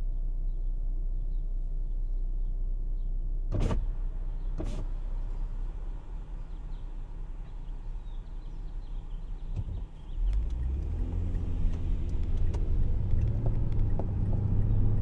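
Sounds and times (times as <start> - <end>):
car engine idling: 3.8 - 15.0.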